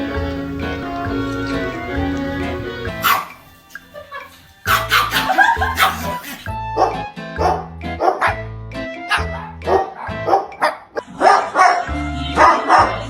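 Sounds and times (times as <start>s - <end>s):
music with blocky bass line: 0.0s - 13.0s
dog barking: 3.0s - 3.4s, 4.0s - 8.4s, 9.1s - 13.0s.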